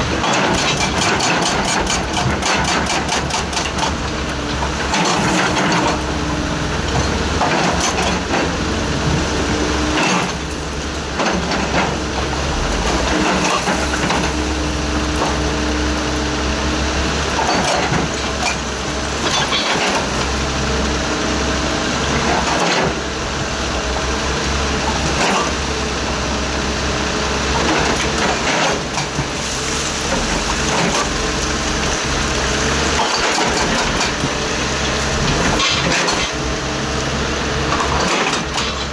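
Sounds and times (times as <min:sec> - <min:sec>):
excavator diesel engine running: 0:00.0 - 0:38.9
machine knocks and clatters: 0:00.1 - 0:06.0.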